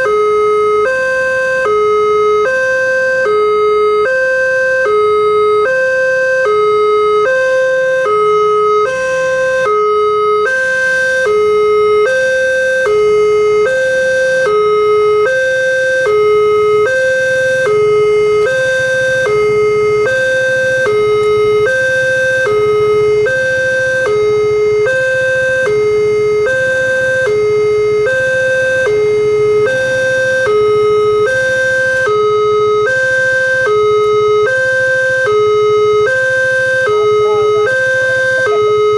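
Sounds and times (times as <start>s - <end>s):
level crossing two-tone alarm: 0.0s - 38.9s.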